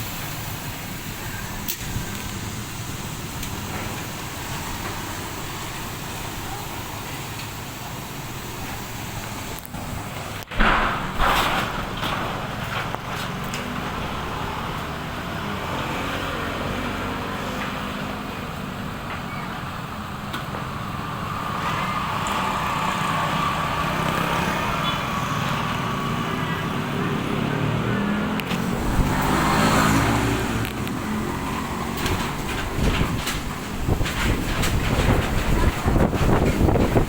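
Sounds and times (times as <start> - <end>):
strong wind gusting: 28.5 - 37.0
wind rumbling on microphone: 28.5 - 37.0.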